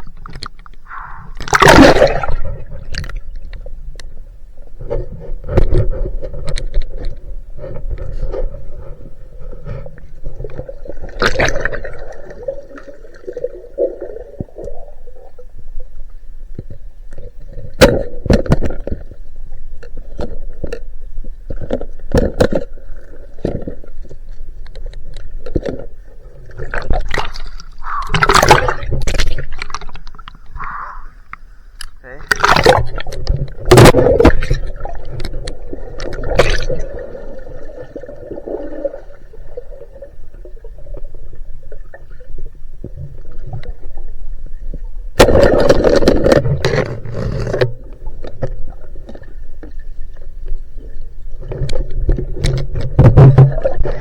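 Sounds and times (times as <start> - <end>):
water sloshing and splashing: 0.0 - 3.7, 4.8 - 15.4, 21.5 - 31.0, 31.8 - 54.0
knocks and scrapes: 4.8 - 10.7, 45.2 - 49.3.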